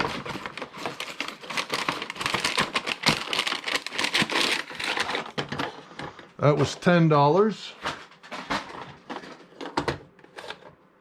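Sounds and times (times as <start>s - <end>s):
toy train car clicks and rustles: 0.0s - 5.8s.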